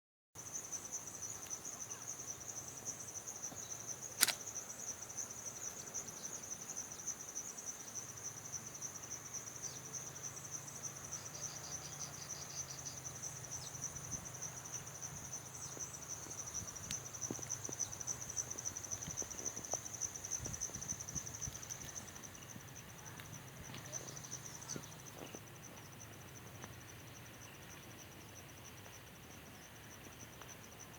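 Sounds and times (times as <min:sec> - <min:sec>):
crickets chirping: 0:00.4 - 0:30.9
sharp click: 0:04.2 - 0:04.4.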